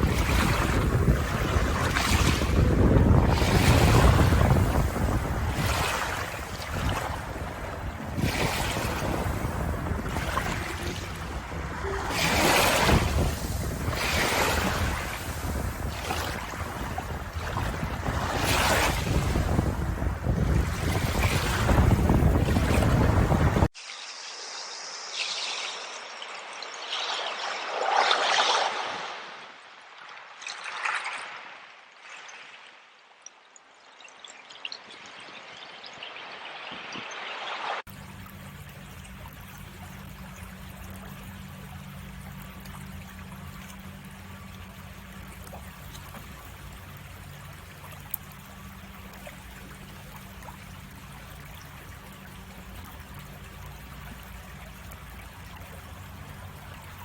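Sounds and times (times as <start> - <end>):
ocean waves washing ashore: 0.0 - 33.0, 34.6 - 57.0
water trickling and splashing: 0.0 - 57.0.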